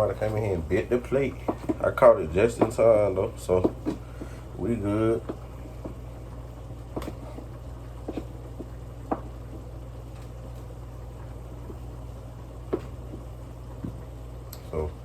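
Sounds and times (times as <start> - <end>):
steady low hum: 0.0 - 15.0
knife knocking on cutting board: 1.4 - 1.8, 2.5 - 2.9, 3.6 - 4.4, 8.1 - 9.3.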